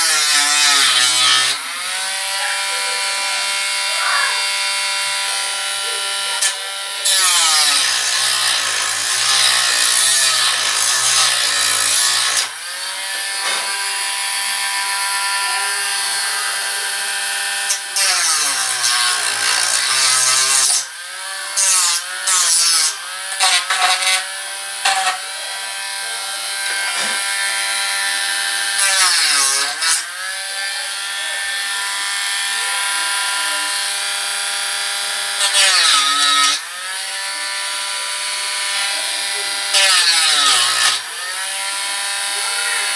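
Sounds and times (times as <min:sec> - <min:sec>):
sanding wheel rasping on wood: 0:00.0 - 0:20.9, 0:35.3 - 0:42.9
rotary tool whining: 0:00.0 - 0:42.9.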